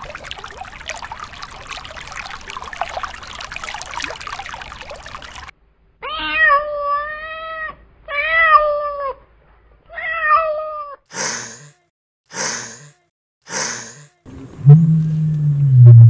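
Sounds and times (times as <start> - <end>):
cat meowing: 6.0 - 9.2, 9.9 - 11.0.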